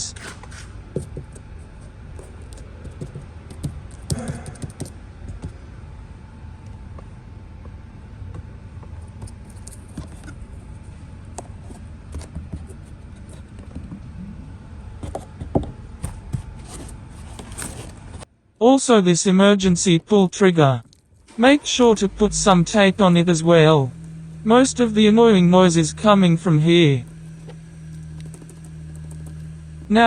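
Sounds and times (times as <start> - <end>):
hands handling wiring and plastic parts: 0.0 - 5.6, 8.8 - 14.0, 15.0 - 18.3, 27.0 - 29.9
low steady hum: 0.0 - 30.0.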